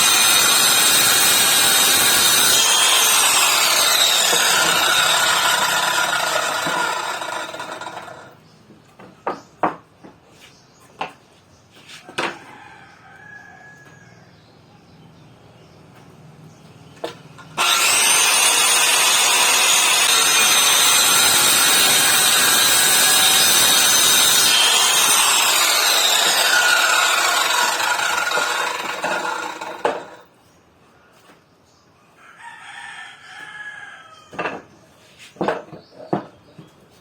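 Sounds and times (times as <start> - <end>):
circular saw cutting wood: 0.0 - 8.4, 17.6 - 30.3
rooster crowing: 12.3 - 14.3, 32.2 - 34.4.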